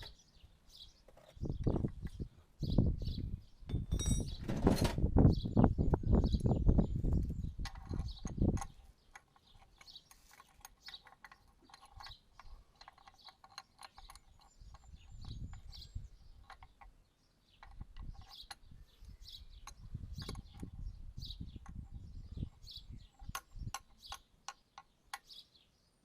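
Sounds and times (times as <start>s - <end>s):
metal clicks and taps: 7.6s - 14.9s, 17.6s - 18.6s, 23.2s - 25.3s.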